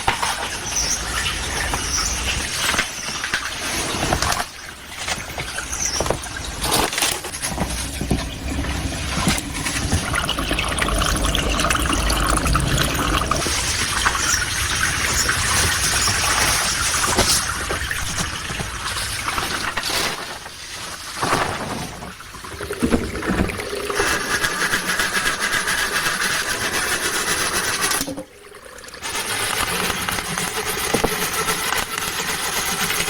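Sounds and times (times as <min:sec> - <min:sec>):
stream water rushing: 0:05.7 - 0:18.0.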